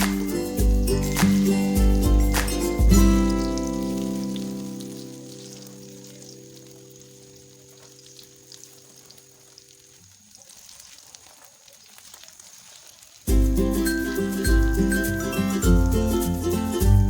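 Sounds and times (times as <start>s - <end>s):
loud music: 0.0s - 3.4s, 13.3s - 17.0s
background music: 0.0s - 6.0s, 13.3s - 17.0s
kababs sizzling in oil: 0.0s - 17.0s.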